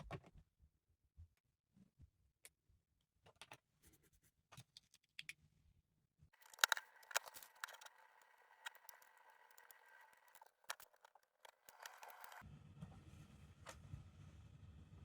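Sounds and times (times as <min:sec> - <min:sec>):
faint steady tones: 0:06.4 - 0:12.4
plastic bricks clicking together: 0:06.4 - 0:12.4.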